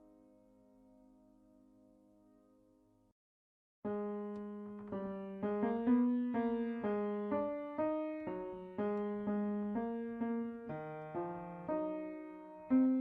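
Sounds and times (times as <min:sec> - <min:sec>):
slow piano melody: 0:03.9 - 0:13.0.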